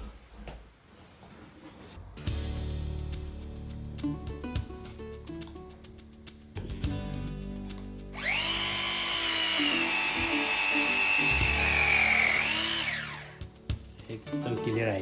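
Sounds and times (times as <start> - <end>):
power tool motor whining: 8.2 - 13.4.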